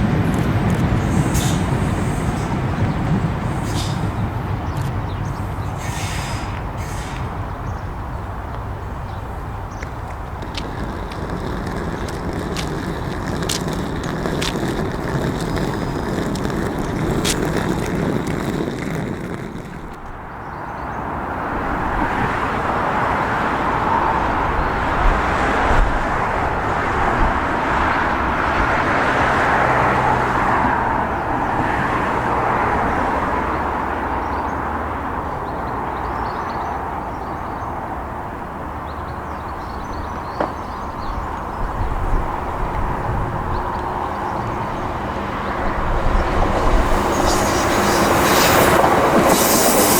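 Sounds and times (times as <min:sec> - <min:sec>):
train running past: 0:00.0 - 0:20.3, 0:45.6 - 0:49.9.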